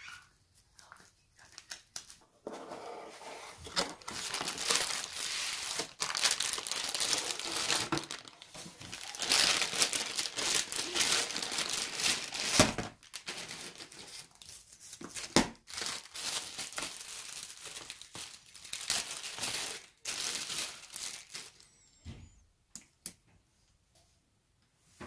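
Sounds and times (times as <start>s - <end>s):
plastic bags crinkling: 3.6s - 21.7s.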